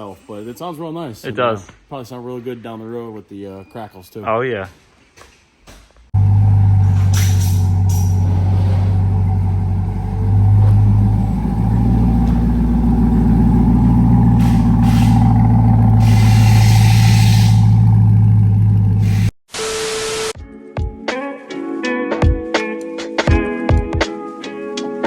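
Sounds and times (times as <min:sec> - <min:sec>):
car engine deep exhaust note: 0:06.2 - 0:19.3.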